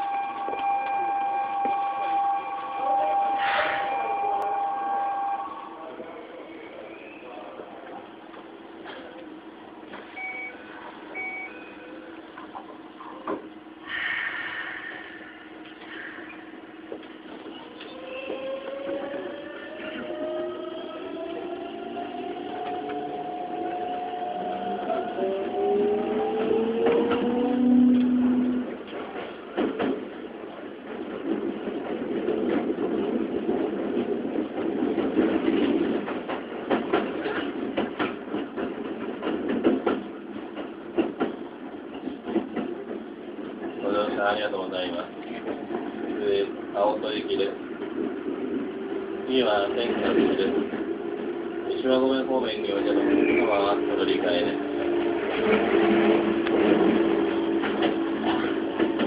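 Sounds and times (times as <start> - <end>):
train hum: 0.0 - 59.0
short electronic beeps: 10.1 - 11.8.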